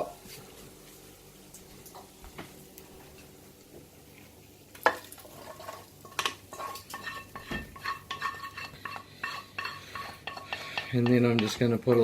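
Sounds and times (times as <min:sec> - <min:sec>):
utensil scraping metal frying pan: 0:04.8 - 0:12.0.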